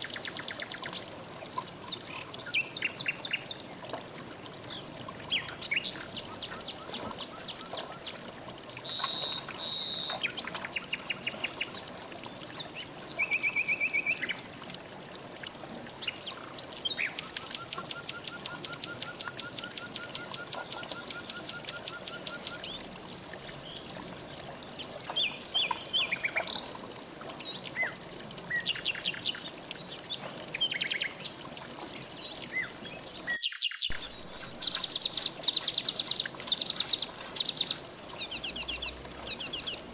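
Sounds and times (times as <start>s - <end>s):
flowing river water: 0.0s - 39.9s
songbirds singing rapid trills: 8.8s - 11.8s, 32.2s - 39.9s.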